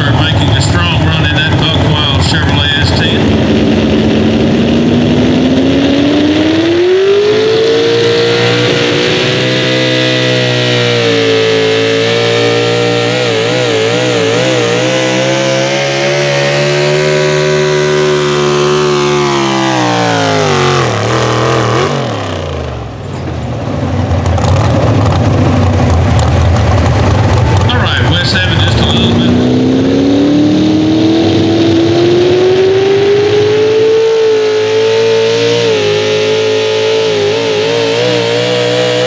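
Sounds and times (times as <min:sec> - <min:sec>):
steady noisy rush: 0:00.0 - 0:10.4, 0:23.7 - 0:33.8
tractor engine at full throttle: 0:00.0 - 0:39.0.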